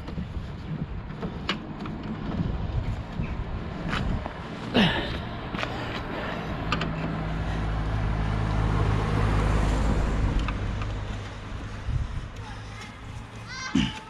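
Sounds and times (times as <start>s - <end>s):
car engine passing: 1.2s - 12.3s.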